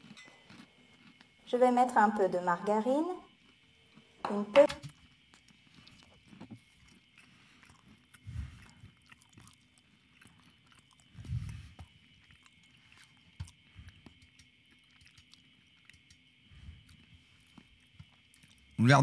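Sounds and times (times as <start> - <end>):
chewing mouth clicks: 5.2 - 18.8.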